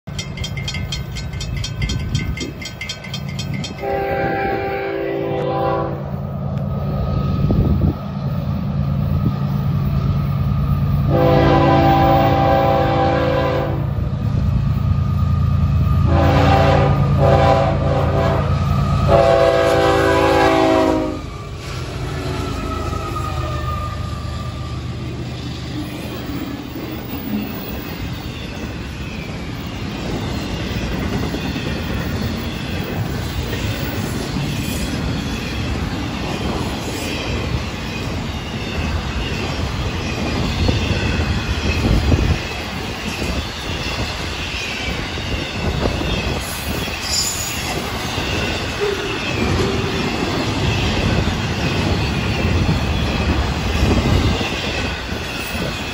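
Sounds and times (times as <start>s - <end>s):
diesel locomotive engines: 0.0s - 55.9s
freight cars rumbling and clattering: 0.1s - 3.9s
locomotive air horn blasts: 3.8s - 6.1s, 11.1s - 13.9s, 16.1s - 21.3s.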